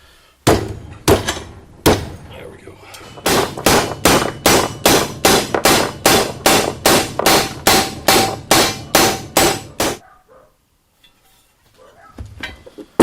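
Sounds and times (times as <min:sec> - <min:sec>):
hammer pounding steel plate: 0:00.4 - 0:02.3, 0:03.0 - 0:10.0.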